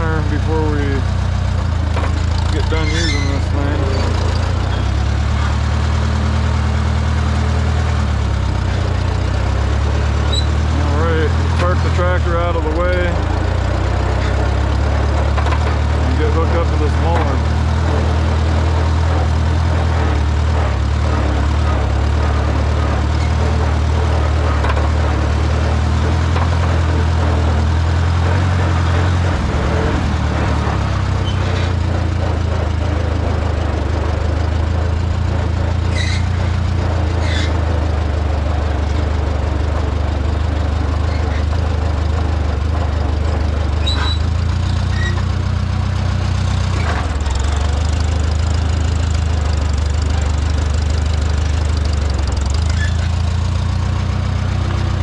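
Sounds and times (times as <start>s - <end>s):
tractor engine running: 0.0s - 55.0s
short squeaks or clinks: 2.6s - 5.5s, 10.2s - 10.7s, 31.2s - 31.8s, 35.8s - 36.6s, 43.8s - 45.4s, 52.6s - 53.2s.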